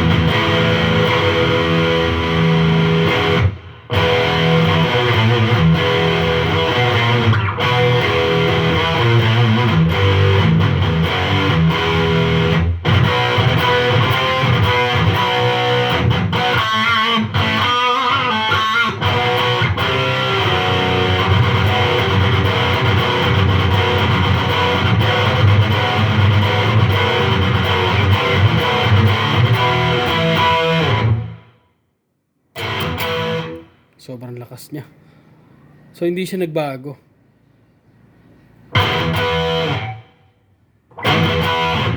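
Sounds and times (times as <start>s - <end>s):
distorted electric guitar: 0.0s - 31.6s, 32.6s - 33.9s, 38.7s - 40.3s, 40.9s - 41.9s.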